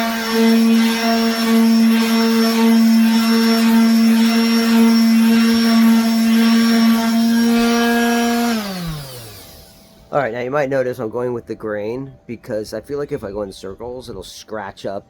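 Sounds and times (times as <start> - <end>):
electric sander running: 0.0 - 10.1.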